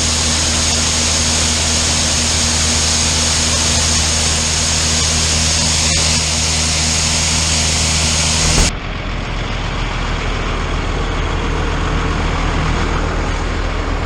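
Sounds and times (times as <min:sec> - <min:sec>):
engine drone: 0:06.6 - 0:10.4
heavy machinery engine running: 0:07.9 - 0:09.6.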